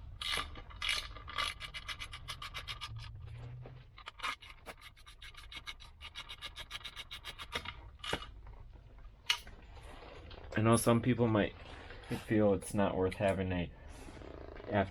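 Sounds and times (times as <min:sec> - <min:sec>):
socket ratchet clicking rapidly: 0:00.2 - 0:03.1.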